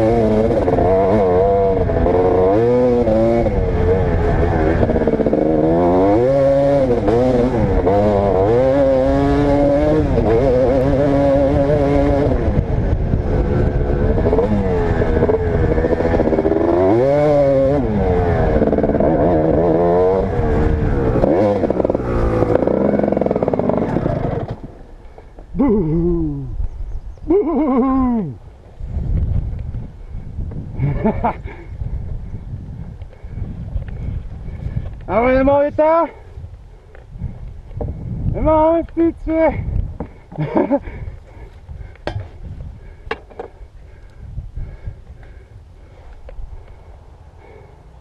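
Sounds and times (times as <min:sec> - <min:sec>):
dirt bike engine revving: 0:00.0 - 0:26.4, 0:38.3 - 0:42.2.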